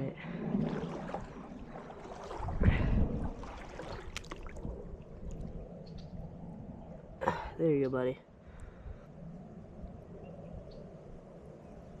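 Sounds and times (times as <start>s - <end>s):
creek water running: 0.0s - 6.1s
low water rush: 0.0s - 12.0s.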